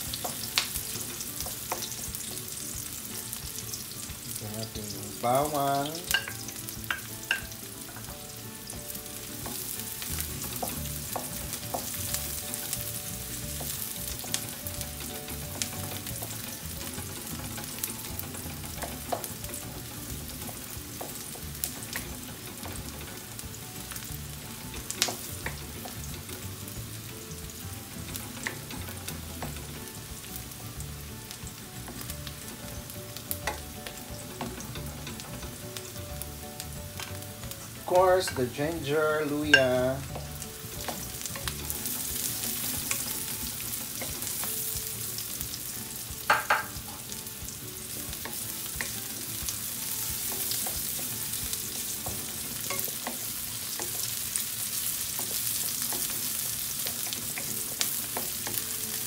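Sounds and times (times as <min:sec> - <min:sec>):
onion and garlic sizzling in oil: 0:00.0 - 0:59.0.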